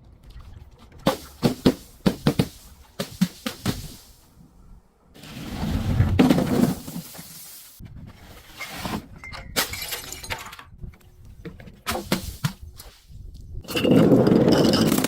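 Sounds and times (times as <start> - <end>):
glass crushing and breaking: 9.2 - 10.7.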